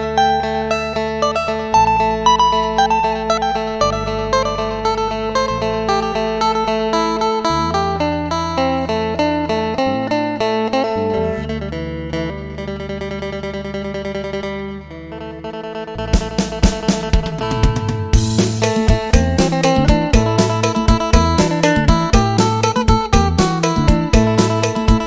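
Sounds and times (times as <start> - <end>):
bass notes: 0.0 - 25.0
plucked guitar melody: 0.0 - 25.0
drum hits: 16.0 - 25.0.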